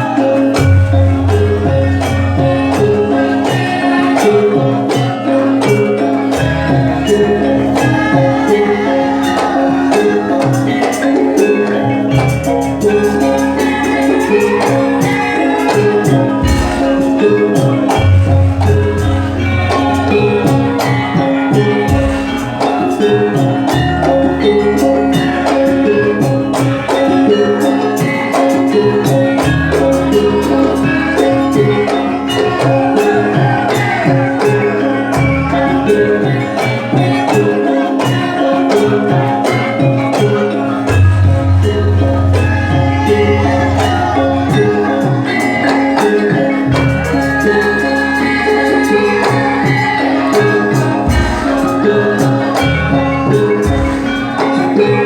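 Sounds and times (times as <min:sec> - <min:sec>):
metallophones ringing: 0:00.0 - 0:55.0
dense drumming: 0:16.1 - 0:24.3, 0:50.8 - 0:55.0.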